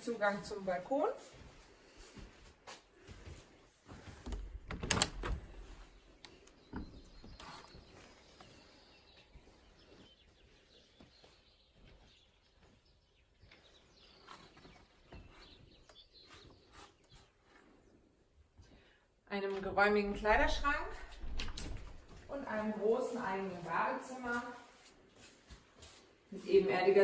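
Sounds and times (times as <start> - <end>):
birds chirping: 4.3 - 18.9.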